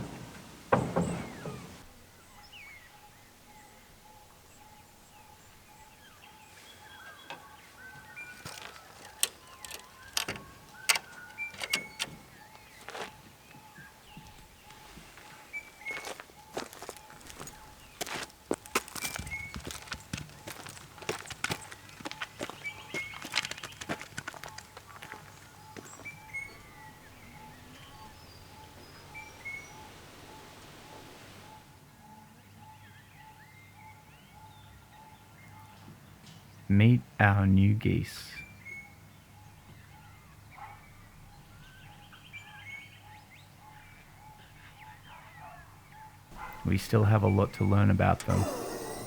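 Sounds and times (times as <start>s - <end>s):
birds chirping: 0.0s - 31.7s, 36.7s - 49.0s
sharp clicks: 8.4s - 12.2s, 46.4s - 49.0s.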